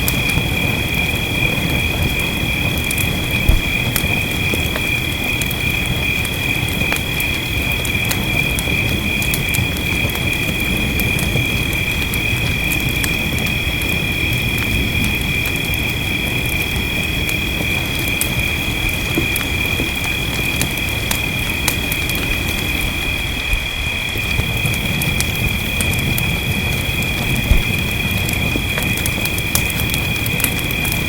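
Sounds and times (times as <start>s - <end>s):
wood fire crackling and popping: 0.0s - 23.4s, 24.1s - 31.0s
rain rumbling: 0.0s - 31.0s.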